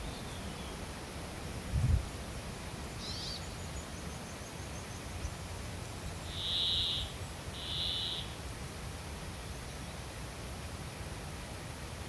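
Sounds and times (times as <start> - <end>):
faint high bird trill: 3.0 - 4.9, 6.3 - 8.4.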